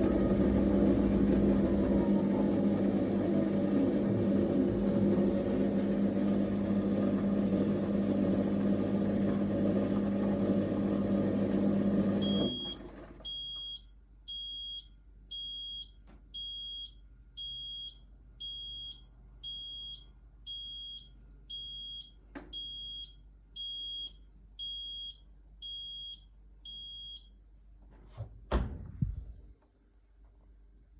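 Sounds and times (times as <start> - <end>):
washing machine motor hum: 0.0 - 13.8, 28.4 - 29.5.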